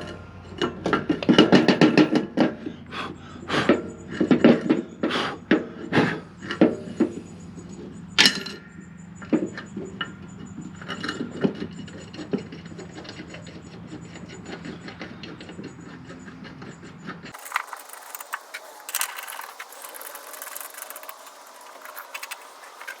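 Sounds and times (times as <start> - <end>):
tools clicking and knocking on metal: 0.0 - 2.6.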